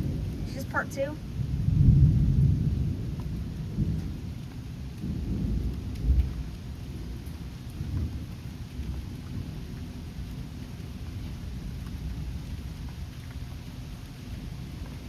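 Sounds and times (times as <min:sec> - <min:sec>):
thunder rumbling: 0:00.0 - 0:12.9
steady rain: 0:00.0 - 0:15.0.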